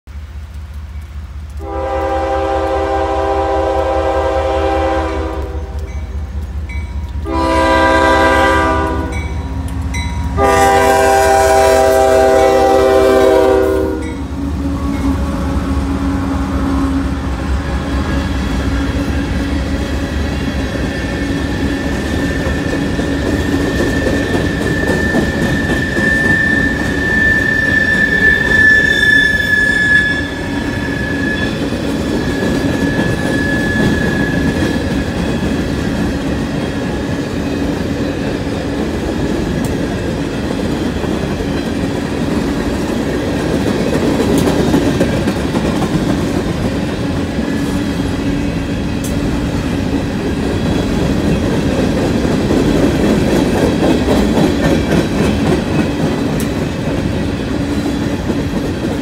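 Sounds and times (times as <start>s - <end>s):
locomotive horn blasts: 1.6s - 6.0s, 7.2s - 9.4s, 10.4s - 14.2s
high wheel squeal: 20.8s - 35.5s.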